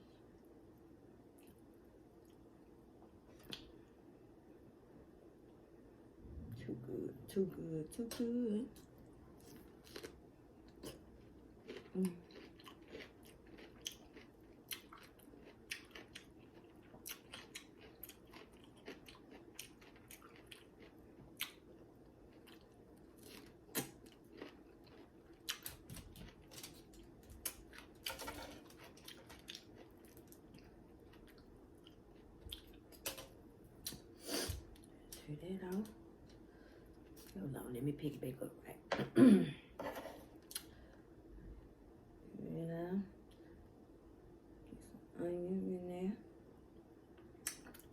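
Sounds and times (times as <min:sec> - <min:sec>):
person chewing and crunching food: 0:08.8 - 0:35.2, 0:47.2 - 0:47.9.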